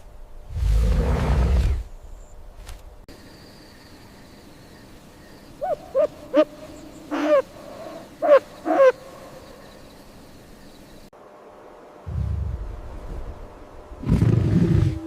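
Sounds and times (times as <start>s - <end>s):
owl hooting: 5.6s - 9.4s.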